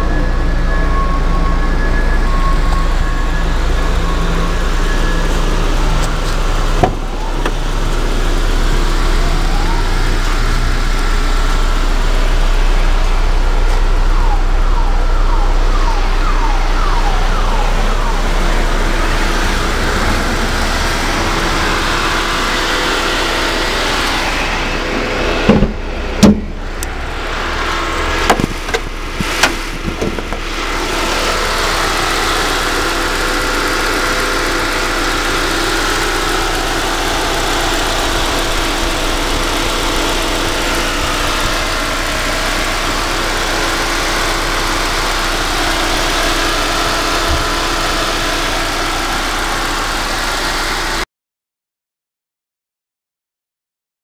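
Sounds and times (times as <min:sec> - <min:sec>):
vehicle engine humming: 0:00.0 - 0:51.0
sharp knocks and thumps: 0:06.8 - 0:07.6, 0:25.4 - 0:26.6, 0:28.3 - 0:30.4.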